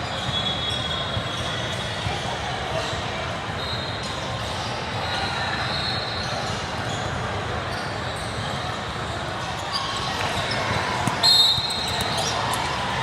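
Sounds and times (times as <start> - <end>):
crowd and player voices: 0.0 - 13.0
shoe squeaks: 3.6 - 8.6, 9.4 - 13.0
basketball bouncing on court: 10.2 - 13.0.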